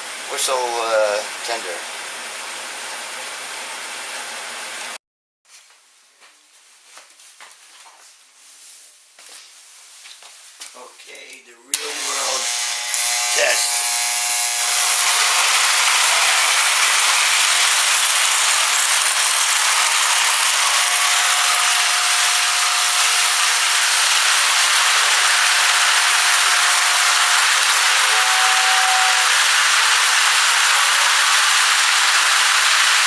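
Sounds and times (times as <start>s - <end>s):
toy train whistle whooshing: 14.9s - 33.0s.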